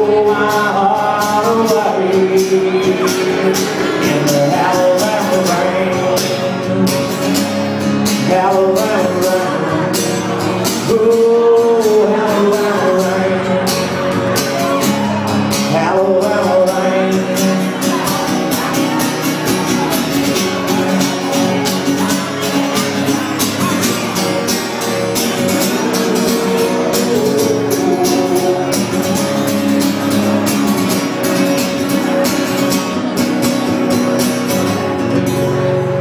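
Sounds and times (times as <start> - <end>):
guitars: 0.0 - 36.0
steady drum beat: 23.2 - 31.2.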